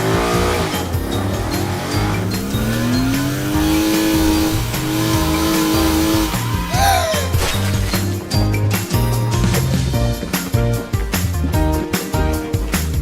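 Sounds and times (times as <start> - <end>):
race car engine: 0.0 - 8.4
background music with steady beat: 0.0 - 13.0.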